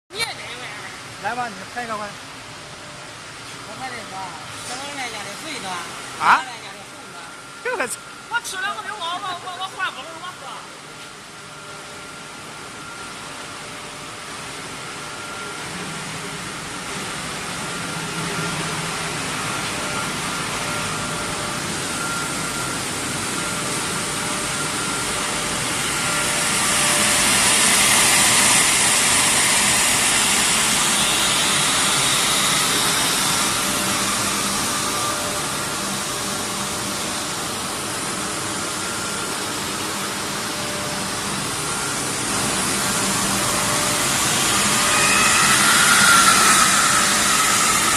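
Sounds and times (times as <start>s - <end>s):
glass washing machine hissing: 17.1s - 47.9s.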